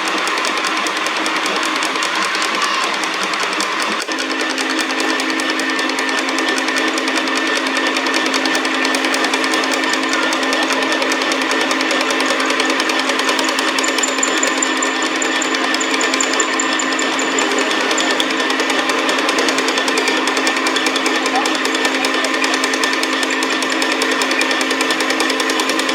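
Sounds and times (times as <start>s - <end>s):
metal lathe rattling: 0.0s - 25.9s
faint high pulsing whistle: 13.3s - 18.3s.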